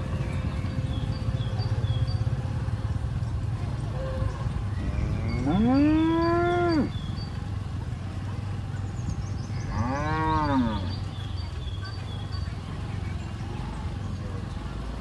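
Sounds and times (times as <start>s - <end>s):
steady low rumble: 0.0s - 9.8s
cows mooing: 3.9s - 7.0s, 9.7s - 11.0s.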